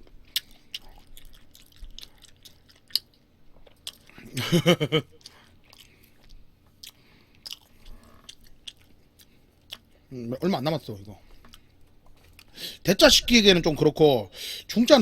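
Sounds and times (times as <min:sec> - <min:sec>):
wet chewing: 0:00.2 - 0:04.2, 0:05.0 - 0:10.0.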